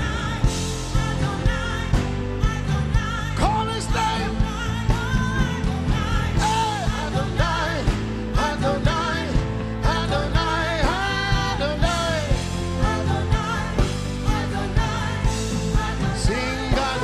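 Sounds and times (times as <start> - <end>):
band playing steady beat: 0.0 - 17.0
voices singing: 6.2 - 17.0.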